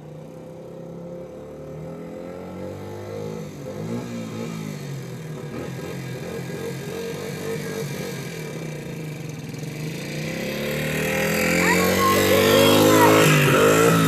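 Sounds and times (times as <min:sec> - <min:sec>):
dirt bike engine revving: 0:09.6 - 0:14.0.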